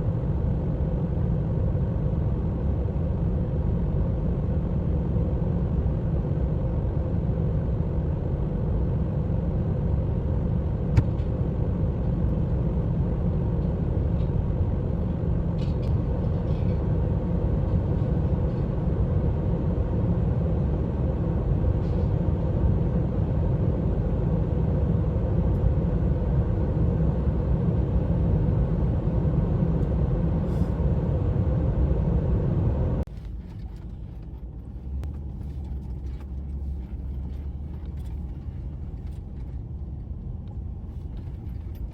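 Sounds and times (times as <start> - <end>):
vehicle engine and road rumble: 0.0 - 41.9.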